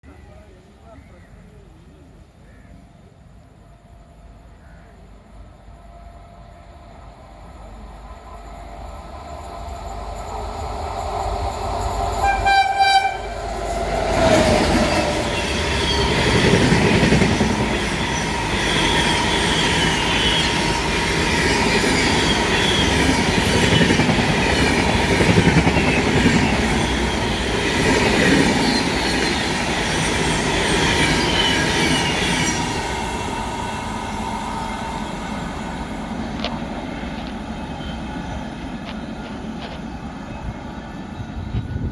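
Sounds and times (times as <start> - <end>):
locomotive horn blast: 12.2 - 13.5.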